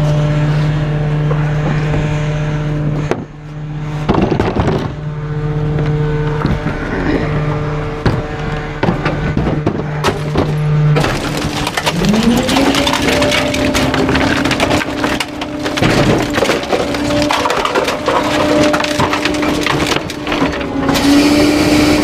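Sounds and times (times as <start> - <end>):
steady machine drone: 0.0 - 22.0
truck engine rising: 0.0 - 22.0
garbage truck packer crushing: 4.0 - 5.1, 7.9 - 22.0
wood cracking and splintering: 4.1 - 5.0, 8.0 - 22.0.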